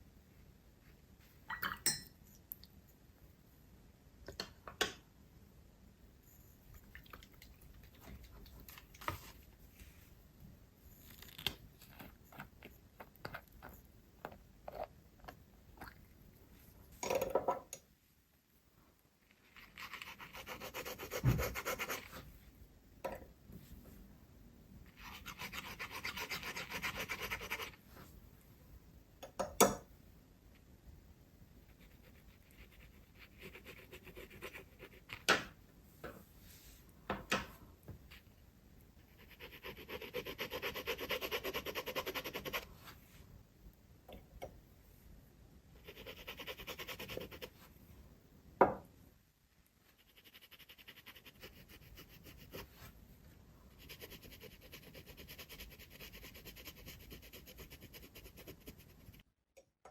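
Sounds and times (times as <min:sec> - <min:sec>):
pen scratching on paper: 0:19.6 - 0:22.2, 0:53.8 - 0:59.2.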